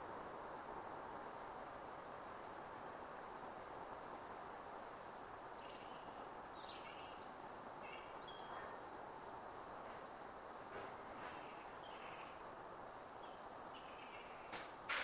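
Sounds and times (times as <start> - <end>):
outdoor background hiss: 0.0 - 15.0
small bird chirping: 5.2 - 8.8, 11.2 - 14.6.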